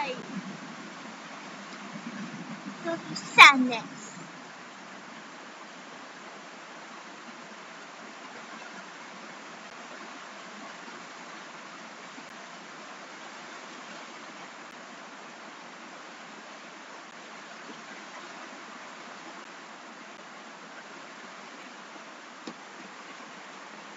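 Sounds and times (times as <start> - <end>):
steady rain hiss: 0.0 - 23.9.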